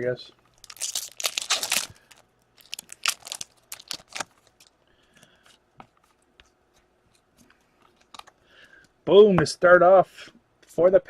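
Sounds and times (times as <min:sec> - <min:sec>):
wrapper crinkling and tearing: 0:00.5 - 0:04.8
cards rustling: 0:00.6 - 0:08.4.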